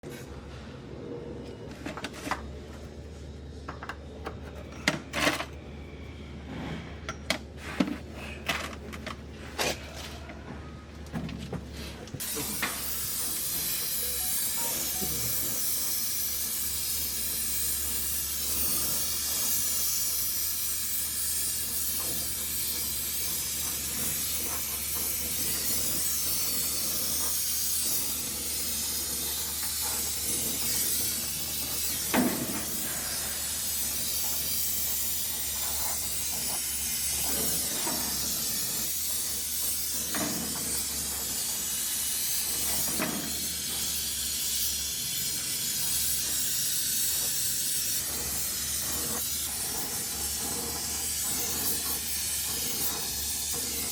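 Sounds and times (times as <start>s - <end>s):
torch flame hissing: 12.2s - 53.9s.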